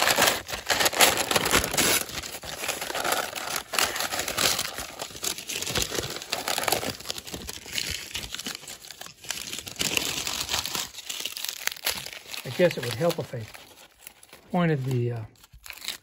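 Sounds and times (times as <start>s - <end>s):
masking tape peeling and crinkling: 0.0s - 16.0s.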